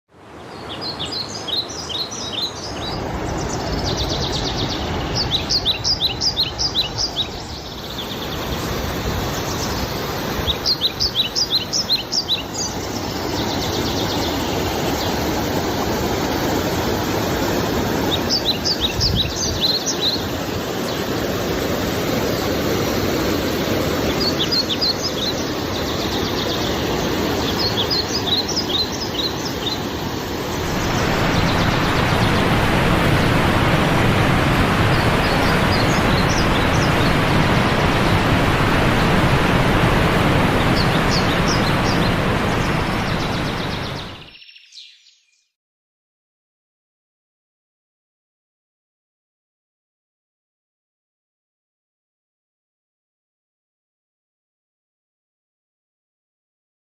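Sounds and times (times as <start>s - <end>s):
small waterfall rushing: 0.1s - 44.3s
songbird singing: 0.3s - 15.7s, 17.8s - 21.6s, 23.7s - 45.6s.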